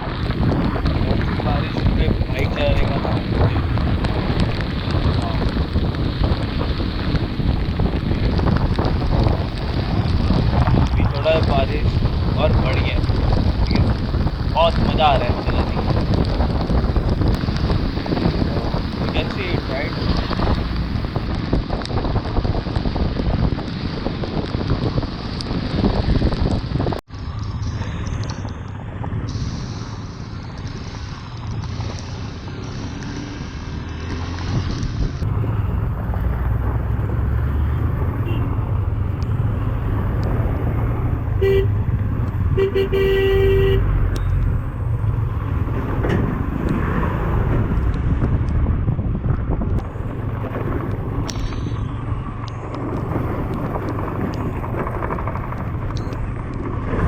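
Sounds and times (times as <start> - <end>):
motorcycle riding: 0.0 - 57.0
wind and road noise: 0.0 - 57.0
vehicle horn: 38.2 - 38.6, 41.3 - 41.9, 42.5 - 44.0.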